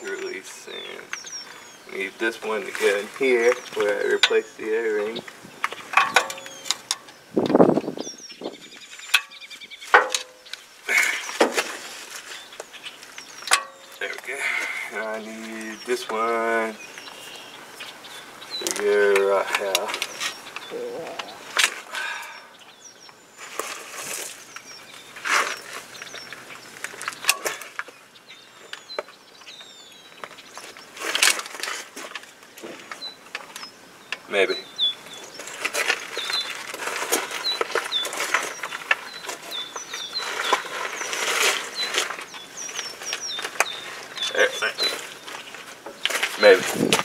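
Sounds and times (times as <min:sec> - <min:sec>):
small birds chirping: 0:00.0 - 0:47.0
metal clicks and knocks: 0:05.9 - 0:07.1.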